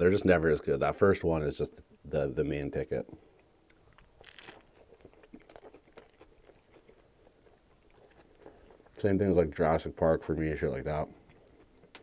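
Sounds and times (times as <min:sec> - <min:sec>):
biting and chewing burger: 0:03.2 - 0:09.3, 0:11.0 - 0:12.0.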